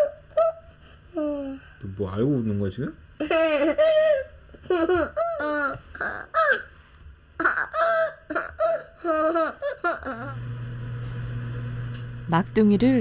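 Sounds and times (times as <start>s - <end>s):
low steady hum: 0.0s - 13.0s
young child giggling: 3.2s - 6.7s, 7.4s - 10.4s.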